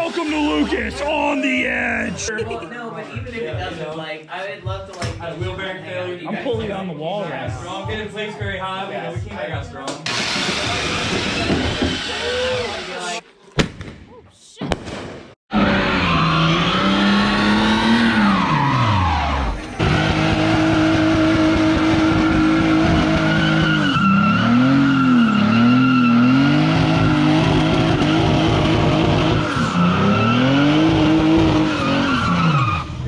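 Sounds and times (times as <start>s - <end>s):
car engine revving: 15.5s - 33.0s.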